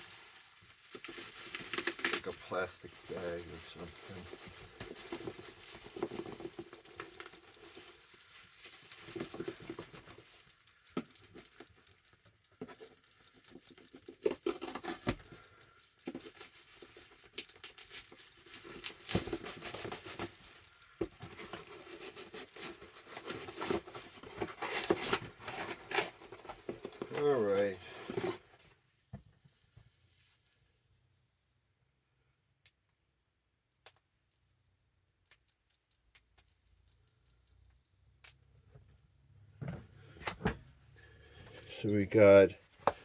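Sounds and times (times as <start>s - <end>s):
plastic bag rustling: 0.0s - 28.7s
sharp clicks and snaps: 33.8s - 34.1s, 35.0s - 38.5s.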